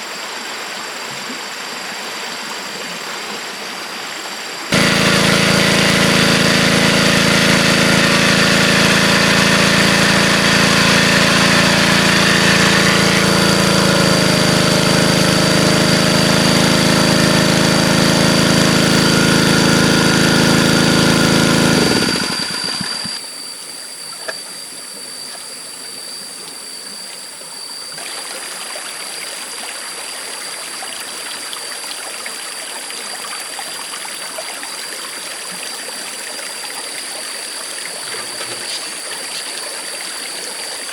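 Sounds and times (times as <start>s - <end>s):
engine running: 4.7s - 23.2s, 37.9s - 40.3s
stream water flowing: 18.1s - 40.9s.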